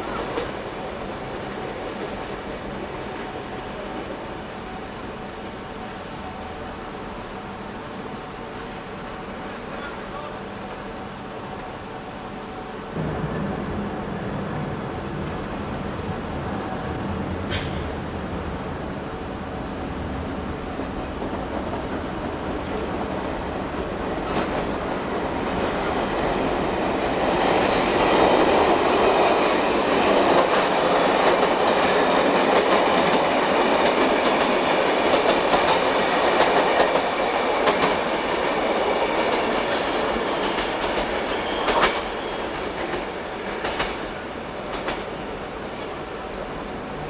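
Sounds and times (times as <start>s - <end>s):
train wheels clattering over rails: 13.0s - 46.0s.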